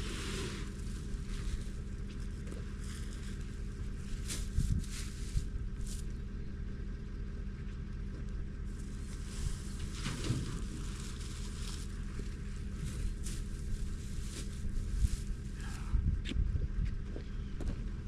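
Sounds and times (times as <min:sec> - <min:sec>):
rustling: 0:00.0 - 0:06.2, 0:08.7 - 0:15.7
engine idling: 0:00.0 - 0:18.0.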